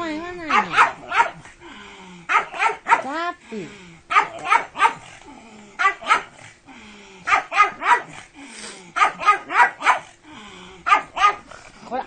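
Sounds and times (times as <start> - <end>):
dog barking: 0.5 - 1.4, 2.3 - 3.2, 4.1 - 5.1, 5.8 - 6.4, 7.3 - 8.2, 9.0 - 10.1, 10.8 - 11.5.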